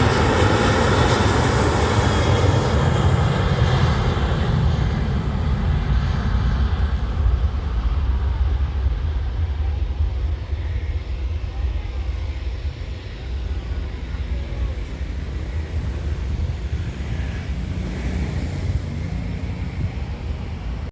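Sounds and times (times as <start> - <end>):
low rumble: 0.0 - 17.7
aeroplane taking off: 0.0 - 20.9.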